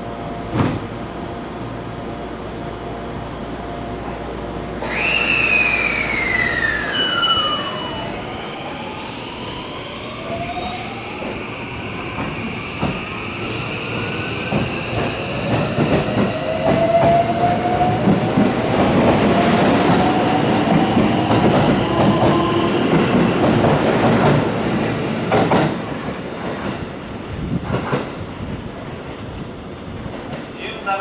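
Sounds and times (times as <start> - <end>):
train motor whine: 4.8 - 24.5.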